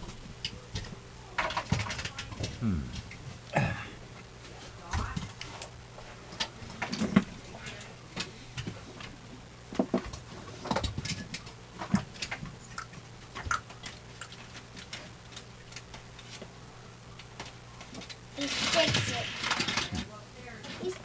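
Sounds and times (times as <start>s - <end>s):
faint low hum: 0.0s - 21.0s
toy cars clicking and clattering: 18.4s - 20.0s.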